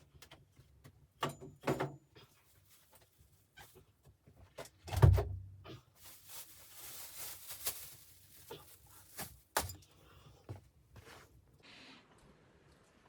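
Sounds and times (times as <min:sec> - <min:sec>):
rustling: 0:05.8 - 0:09.7.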